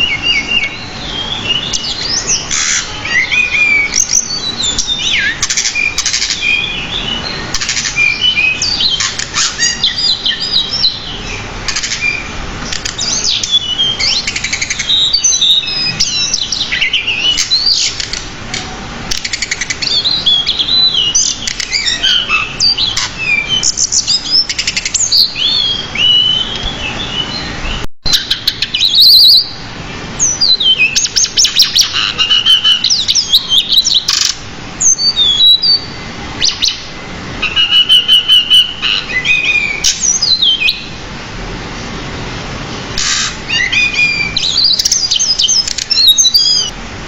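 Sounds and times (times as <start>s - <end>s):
songbird singing chirps and trills: 0.0s - 46.8s.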